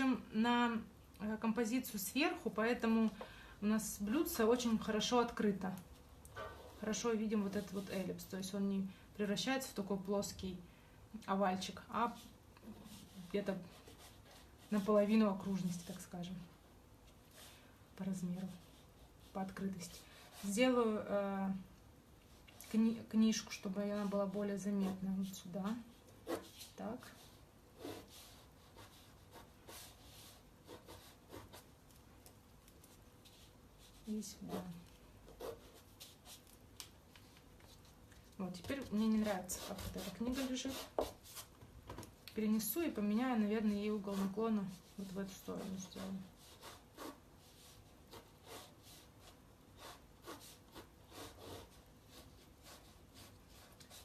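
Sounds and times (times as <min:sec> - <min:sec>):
pencil sketching on paper: 0:12.8 - 0:16.1, 0:18.4 - 0:20.8, 0:26.2 - 0:31.7, 0:33.2 - 0:36.5, 0:38.8 - 0:41.4, 0:43.9 - 0:54.0.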